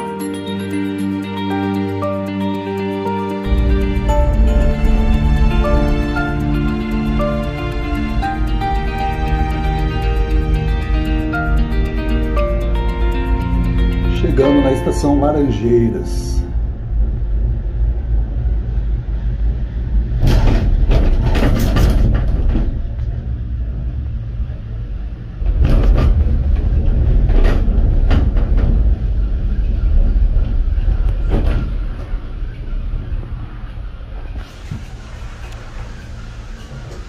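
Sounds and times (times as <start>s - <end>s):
cable car cabin rumbling: 3.2s - 37.0s
rattling and clattering knocks: 20.2s - 23.2s.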